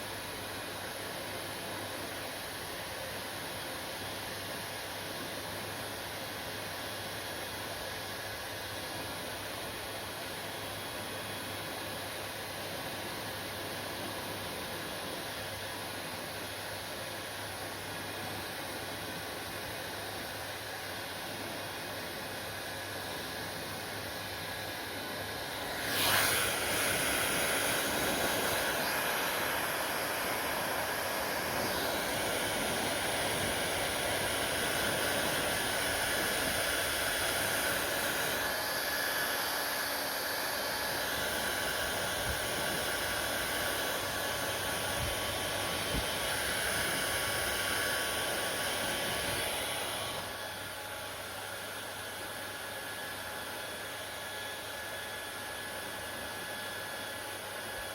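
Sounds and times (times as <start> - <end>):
hair dryer blowing: 0.0 - 57.9.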